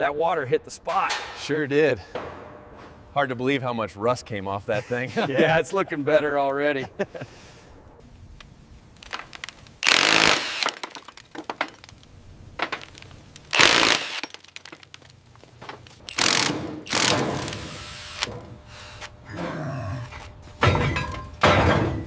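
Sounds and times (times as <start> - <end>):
power tool working on metal: 9.8 - 10.8, 13.5 - 14.4, 16.1 - 19.1.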